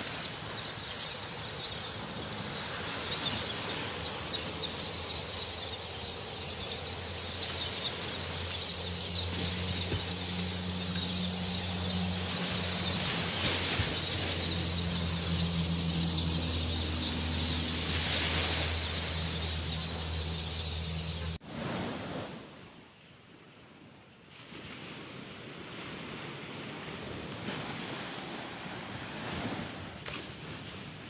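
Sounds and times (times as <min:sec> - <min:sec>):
surf: 0:00.0 - 0:22.8
wind: 0:00.0 - 0:31.0
steady low hum: 0:01.9 - 0:21.4.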